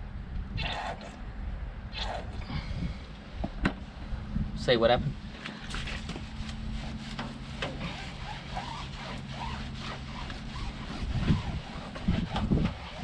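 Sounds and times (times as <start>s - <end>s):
low mechanical hum: 0.0s - 13.0s
scrubbing a tyre: 5.6s - 13.0s.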